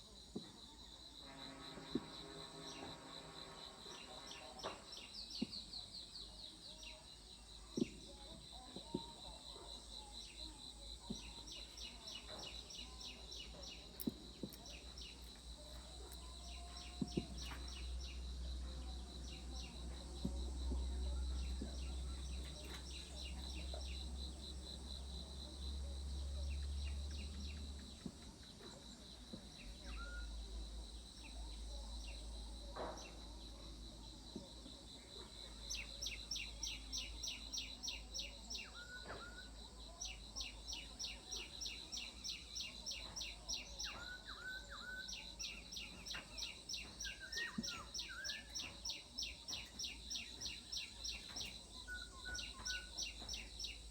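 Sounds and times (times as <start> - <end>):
insect buzz: 1.1 - 5.6.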